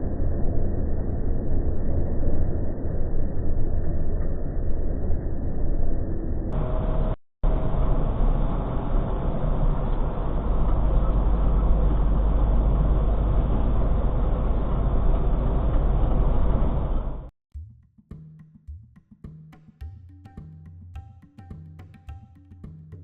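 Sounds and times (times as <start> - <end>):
truck engine and road drone: 0.0 - 17.3.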